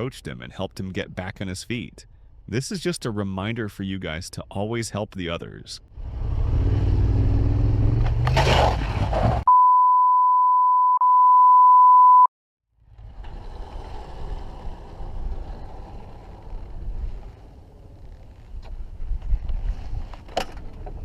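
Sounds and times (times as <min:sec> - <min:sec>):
road and vehicle noise: 0:05.8 - 0:09.5, 0:12.7 - 0:21.0
steady beep tone: 0:09.5 - 0:12.3.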